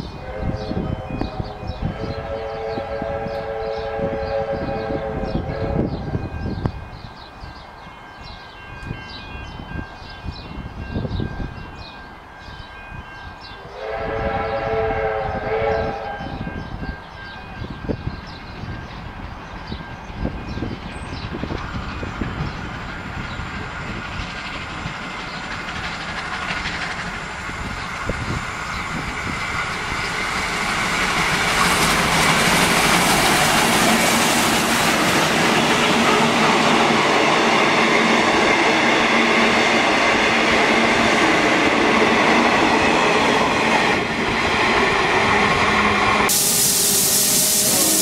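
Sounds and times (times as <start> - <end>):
train wheels rumbling on rails: 0.0 - 48.0.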